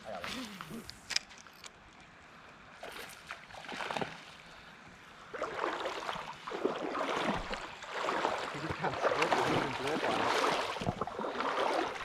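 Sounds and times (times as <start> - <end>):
water splashing in a creek: 2.7 - 12.0.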